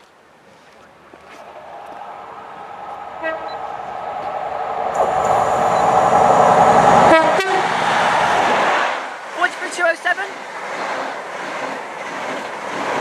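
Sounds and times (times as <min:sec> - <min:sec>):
passenger train passing: 0:00.9 - 0:13.0
train horn tone: 0:02.9 - 0:07.8.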